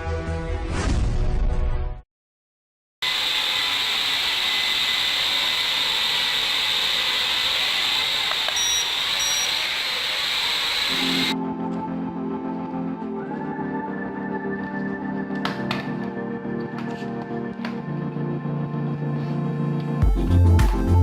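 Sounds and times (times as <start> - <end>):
electric motor and propeller whine: 3.0 - 11.4
short high beeps: 8.6 - 9.6.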